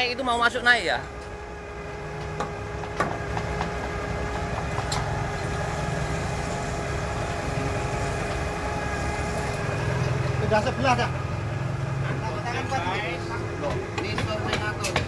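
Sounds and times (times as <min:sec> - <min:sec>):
forklift engine running: 0:00.0 - 0:15.0
sharp metallic clicks and knocks: 0:13.6 - 0:15.0.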